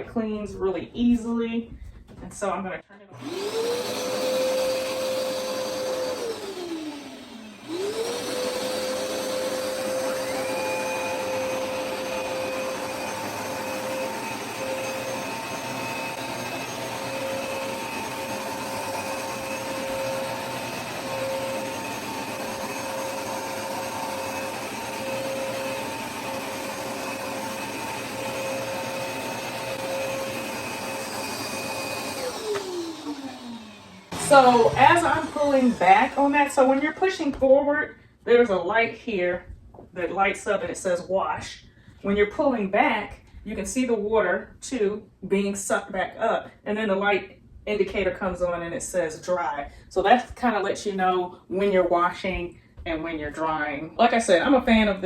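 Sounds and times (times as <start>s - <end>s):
carpet cleaner motor whining: 3.2s - 37.2s.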